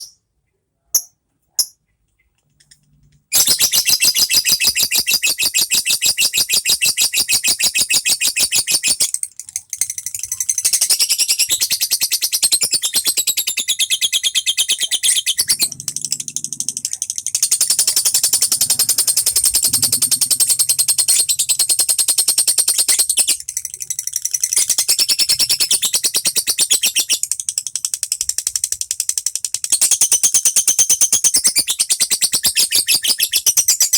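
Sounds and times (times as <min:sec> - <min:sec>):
lovebird chattering: 0:03.5 - 0:29.4.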